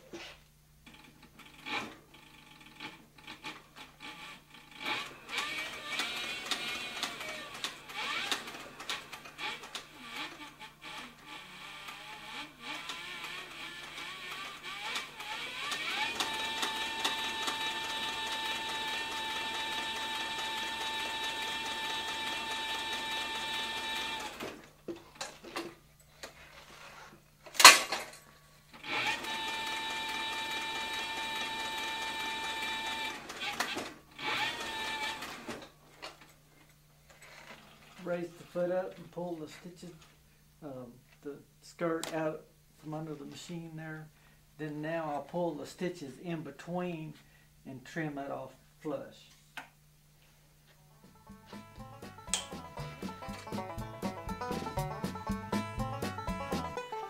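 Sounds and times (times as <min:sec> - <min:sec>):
sewing machine clicking: 0:00.8 - 0:25.7, 0:28.7 - 0:36.3.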